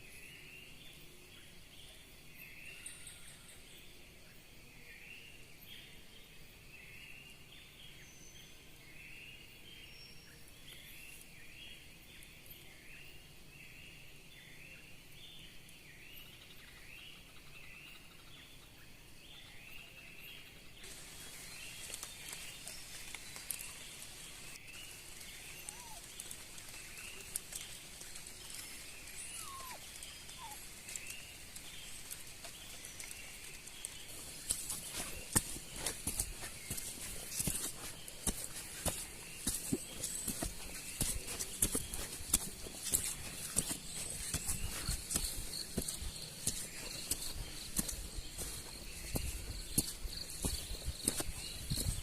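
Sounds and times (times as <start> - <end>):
animal chirping: 25.6 - 26.2, 29.2 - 31.0.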